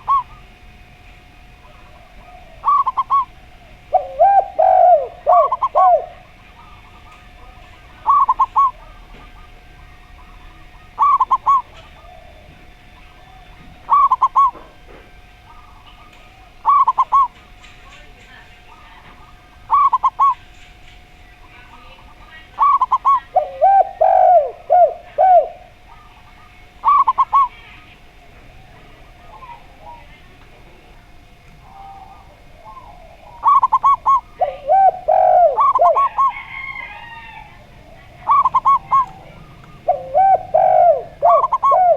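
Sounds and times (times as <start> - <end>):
dove cooing quick notes: 0.0 - 0.4, 1.7 - 7.3, 8.0 - 9.6, 10.2 - 12.7, 13.3 - 14.7, 22.6 - 25.8, 31.6 - 41.9
dove low coos: 0.0 - 41.9
faint steady hum: 0.0 - 41.9.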